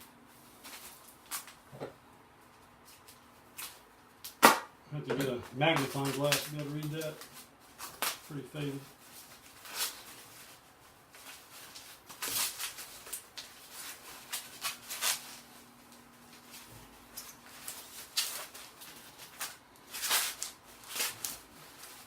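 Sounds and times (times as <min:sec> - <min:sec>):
packaging rustling and scraping: 0:05.2 - 0:22.0.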